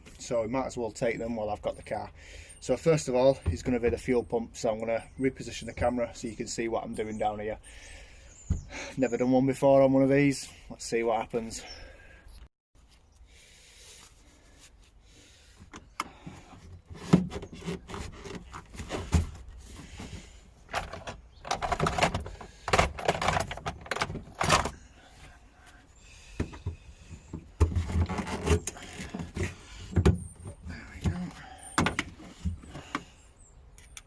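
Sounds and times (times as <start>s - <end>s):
tools and parts clicking and rattling: 20.7s - 24.8s.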